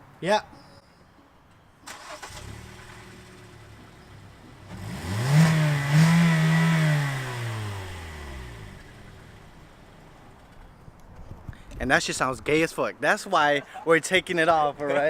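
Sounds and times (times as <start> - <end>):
car engine idling and revving: 2.0 - 10.5.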